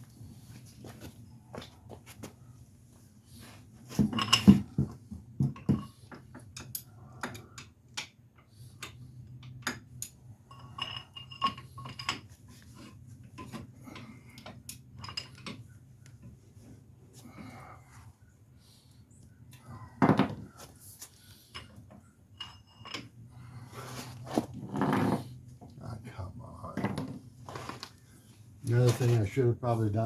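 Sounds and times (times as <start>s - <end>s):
metal tools clinking and knocking: 4.0s - 6.0s, 9.5s - 15.7s, 21.5s - 23.2s.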